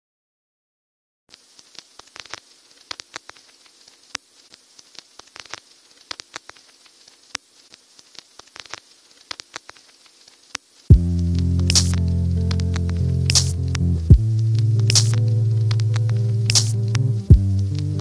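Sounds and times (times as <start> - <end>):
crackling clicks and pops: 1.3 - 18.0
faint hiss: 1.3 - 18.0.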